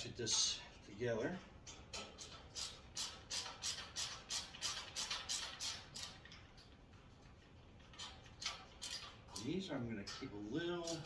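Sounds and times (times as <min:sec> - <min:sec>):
hand ratchet clicking: 0:01.7 - 0:06.8, 0:07.8 - 0:11.0.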